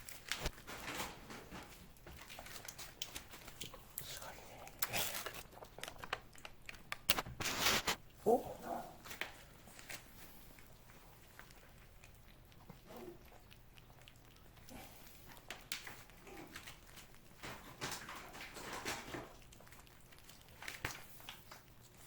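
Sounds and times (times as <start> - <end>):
cats licking and smacking: 0.0 - 22.0.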